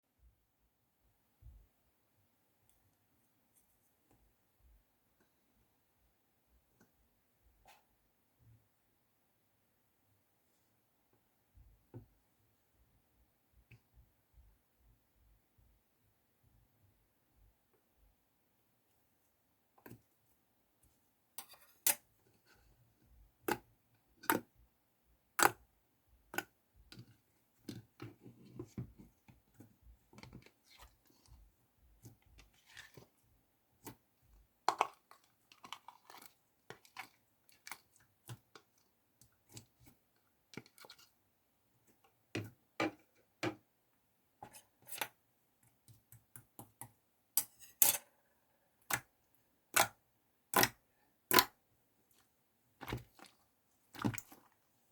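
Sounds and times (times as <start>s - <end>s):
sticky slime squelching: 26.3s - 41.1s, 49.7s - 54.9s.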